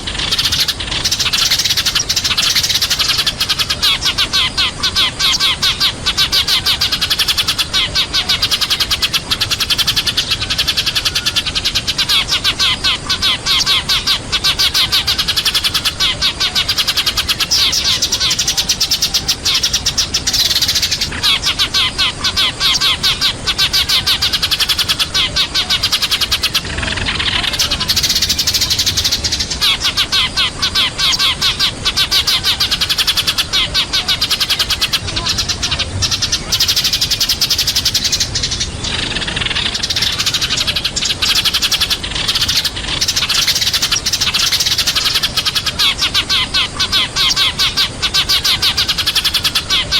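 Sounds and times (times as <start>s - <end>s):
sparrows chirping: 0.0s - 49.9s.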